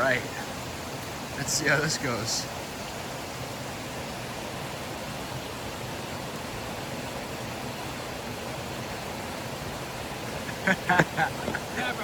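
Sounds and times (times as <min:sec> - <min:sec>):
rushing water of a brook: 0:00.0 - 0:12.0.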